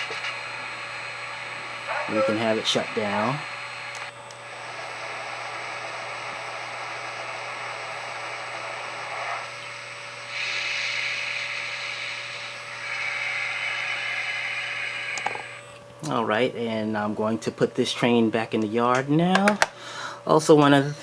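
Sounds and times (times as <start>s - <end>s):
model train steam hiss: 4.6s - 15.6s.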